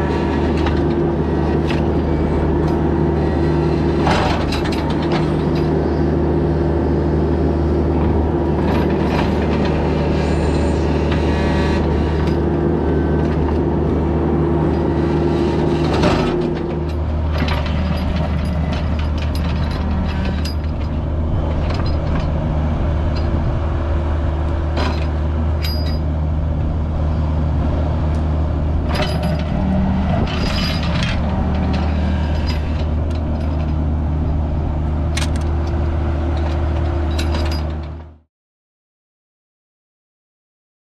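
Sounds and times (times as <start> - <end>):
excavator diesel engine running: 0.0 - 38.2
metal clanks and scrapes: 2.6 - 5.8, 14.7 - 22.4, 24.7 - 26.1, 28.8 - 33.9, 35.1 - 38.0.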